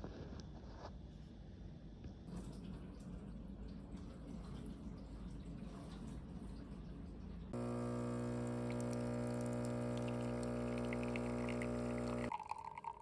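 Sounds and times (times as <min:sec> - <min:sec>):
coffee machine pump humming: 0:07.6 - 0:13.0
liquid pouring: 0:07.6 - 0:13.0.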